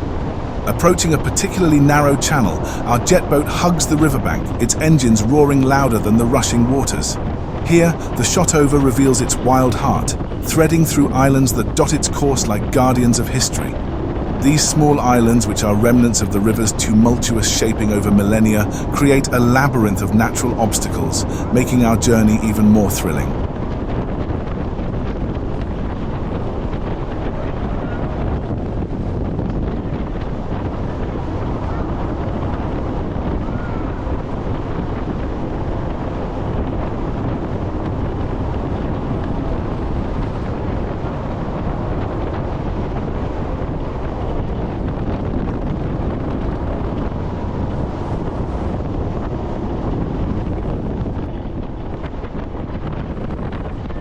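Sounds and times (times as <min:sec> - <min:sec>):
rushing water: 0:00.0 - 0:23.0
boat engine drone: 0:00.0 - 0:54.0
wind buffeting microphone: 0:00.0 - 0:54.0.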